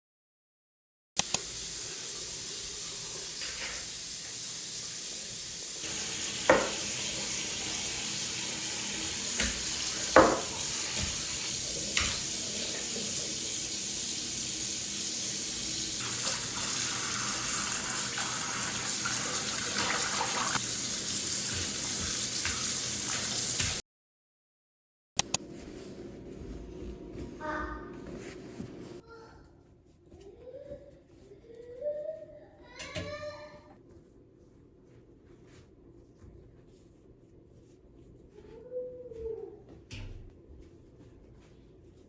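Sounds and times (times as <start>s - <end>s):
tap water running into sink: 1.3s - 23.8s.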